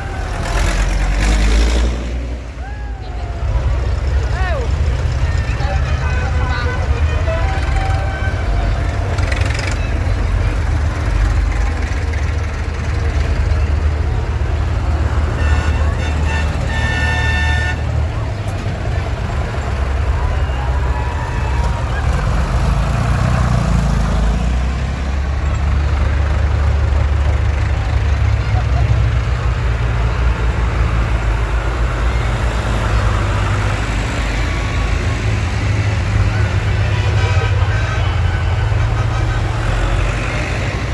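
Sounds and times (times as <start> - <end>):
tractor engines rumbling: 0.0 - 40.9
horn tooting: 2.6 - 11.6, 13.0 - 24.6, 34.7 - 40.9.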